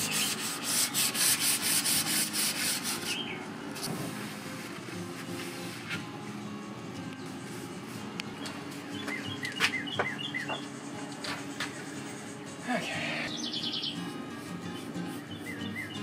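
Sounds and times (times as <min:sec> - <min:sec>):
soft background music: 0:00.0 - 0:16.0
small birds chirping: 0:08.3 - 0:16.0.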